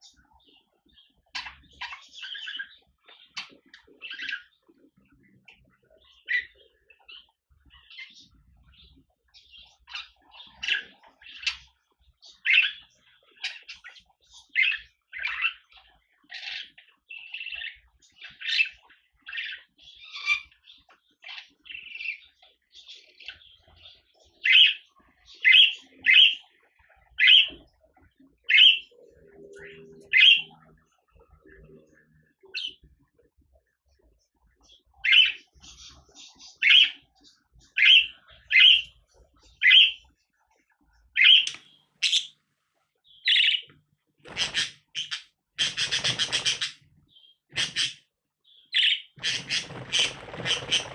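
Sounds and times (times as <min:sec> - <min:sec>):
budgerigar chirping: 0:28.5 - 0:28.9, 0:29.7 - 0:30.6, 0:35.0 - 0:40.0, 0:41.2 - 0:42.4, 0:43.0 - 0:43.7, 0:44.3 - 0:50.9.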